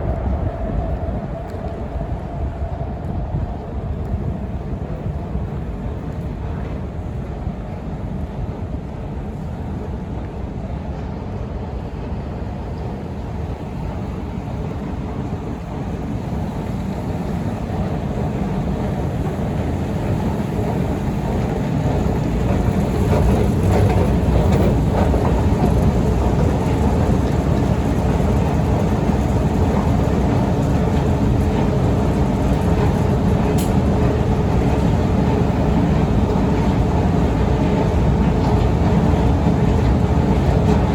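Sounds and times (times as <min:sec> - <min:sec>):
low mechanical rumble: 0:14.3 - 0:40.9.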